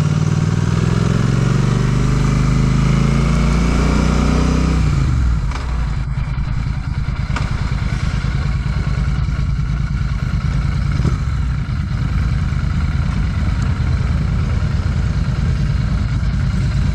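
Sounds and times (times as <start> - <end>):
motorcycle engine idling: 4.6 - 16.9.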